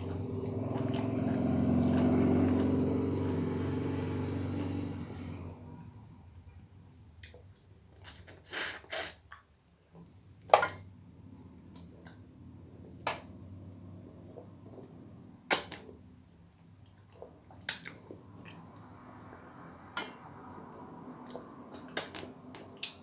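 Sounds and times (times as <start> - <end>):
wet smacking eating sounds: 0.0 - 3.0, 16.8 - 19.0.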